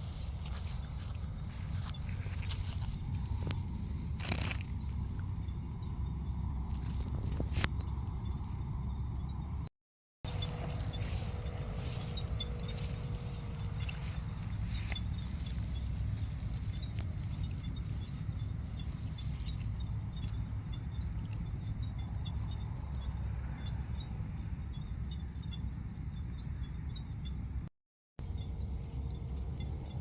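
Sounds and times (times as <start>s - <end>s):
continuous low rumble: 0.0s - 9.7s, 10.3s - 30.0s
insects trilling: 0.0s - 9.7s, 10.3s - 27.6s, 28.2s - 30.0s.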